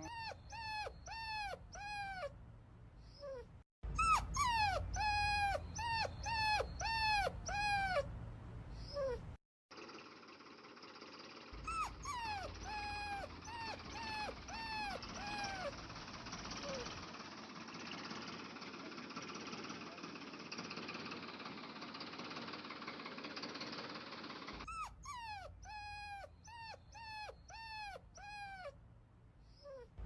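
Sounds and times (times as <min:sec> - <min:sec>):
puppy whining: 0:00.0 - 0:02.4, 0:03.0 - 0:09.4, 0:11.6 - 0:17.0, 0:24.6 - 0:28.8, 0:29.4 - 0:30.0.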